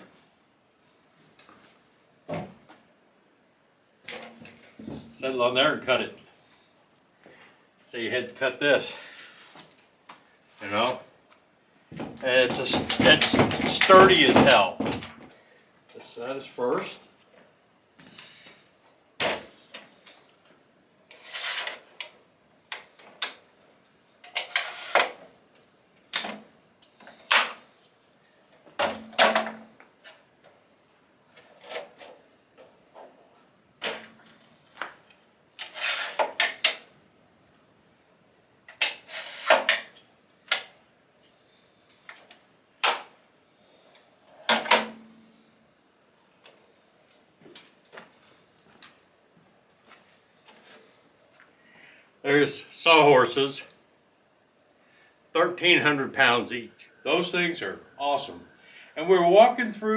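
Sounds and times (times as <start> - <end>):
sawhorse legs clacking: 12.0 - 15.0.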